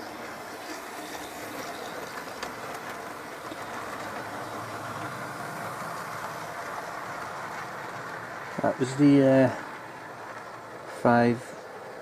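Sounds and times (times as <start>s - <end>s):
model train motor whirring: 0.0s - 10.8s
wheels clicking on rails: 0.0s - 12.0s.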